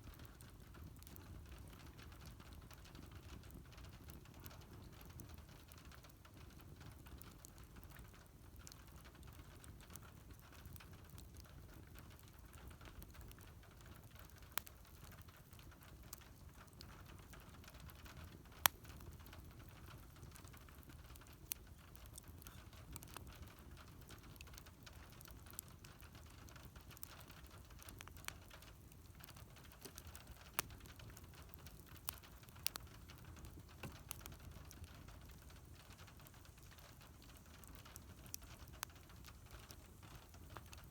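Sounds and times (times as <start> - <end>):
wood fire crackling: 0.0 - 40.9
sharp pops of fire: 26.9 - 40.9.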